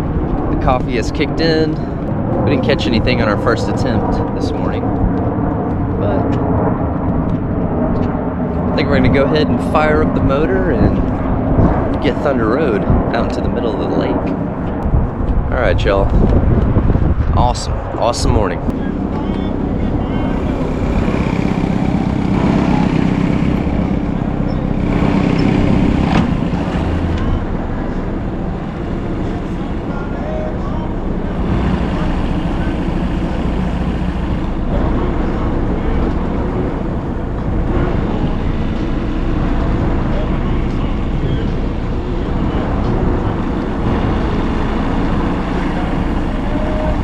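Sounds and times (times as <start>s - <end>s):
outboard motor running: 18.7s - 47.0s.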